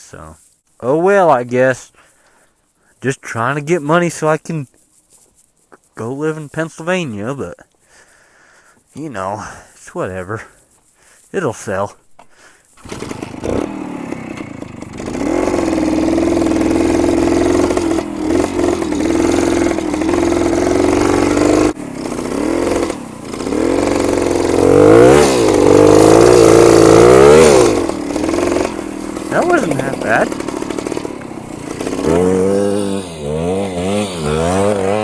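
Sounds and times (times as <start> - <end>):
two-stroke motorcycle engine: 12.2 - 35.0.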